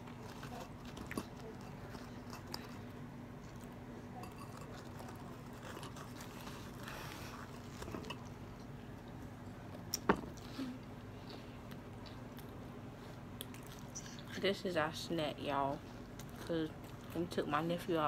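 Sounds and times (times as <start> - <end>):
person chewing and biting: 4.4 - 9.2.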